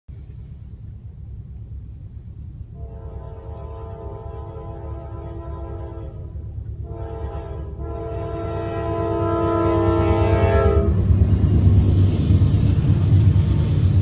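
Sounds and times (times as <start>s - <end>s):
diesel locomotives rumbling: 0.1s - 14.0s
locomotive air horn: 2.7s - 11.0s.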